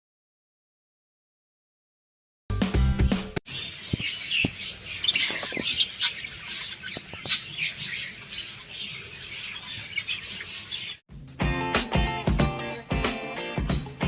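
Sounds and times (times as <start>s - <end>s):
parrots chirping and squawking: 3.5s - 11.0s.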